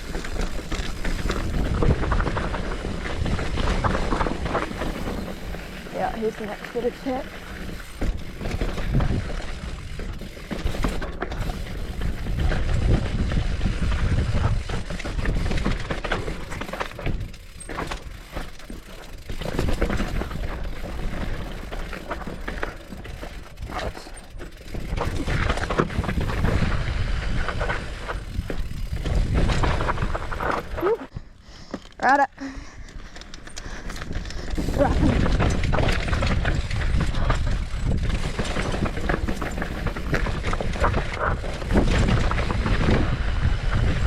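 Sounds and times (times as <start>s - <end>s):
low wind rumble on microphone: 0.0s - 18.4s, 19.2s - 31.4s, 33.8s - 44.0s
bike rattling over bumps: 0.0s - 44.0s.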